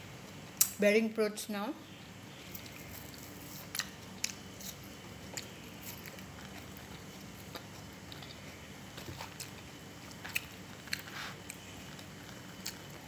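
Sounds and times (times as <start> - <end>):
faint soft chewing: 2.4 - 13.0.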